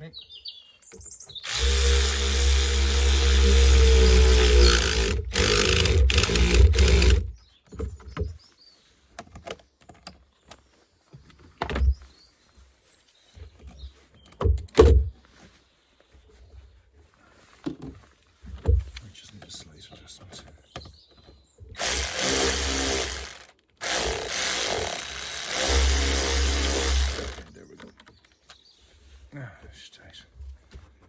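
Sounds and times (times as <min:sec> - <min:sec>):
power drill running: 0:01.4 - 0:07.3, 0:21.8 - 0:27.5
knocks and clicks of tools: 0:01.4 - 0:08.4, 0:21.8 - 0:28.2.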